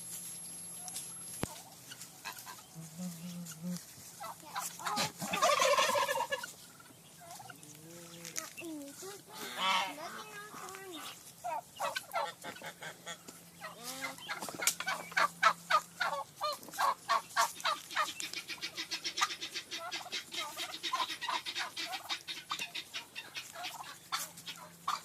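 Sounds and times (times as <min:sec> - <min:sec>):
farm animals calling: 0:00.3 - 0:25.0.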